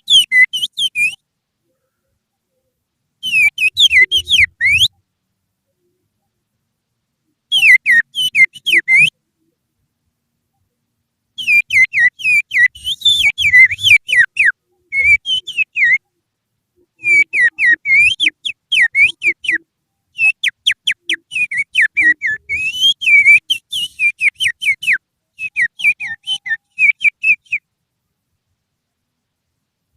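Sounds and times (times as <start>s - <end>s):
finger whistling birdsong imitation: 0.0s - 1.2s, 3.2s - 5.0s, 7.5s - 9.2s, 11.4s - 16.0s, 17.0s - 27.6s.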